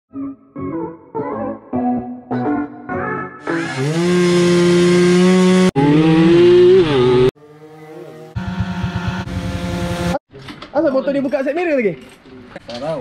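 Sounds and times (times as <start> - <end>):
motorcycle engine revving: 3.4 - 10.2.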